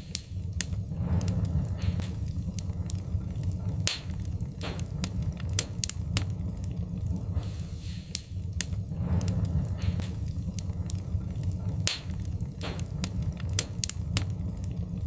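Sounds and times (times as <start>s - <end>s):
logs crackling and popping: 0.0s - 15.0s
low rumble of flames: 0.0s - 15.0s
soft hissing flare-ups: 0.0s - 15.0s.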